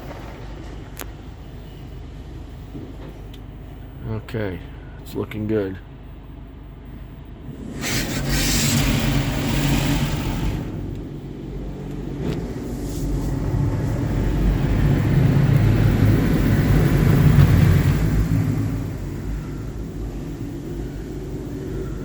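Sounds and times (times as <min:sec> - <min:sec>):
car wash machinery hum: 0:05.8 - 0:22.0
water spray hissing on car: 0:07.6 - 0:10.8.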